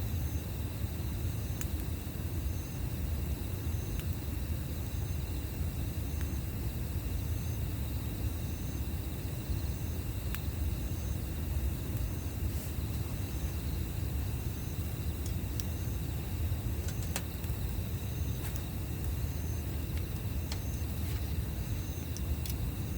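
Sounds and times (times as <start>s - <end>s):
insect chirping: 0.0s - 22.9s
campfire crackling: 1.5s - 22.9s.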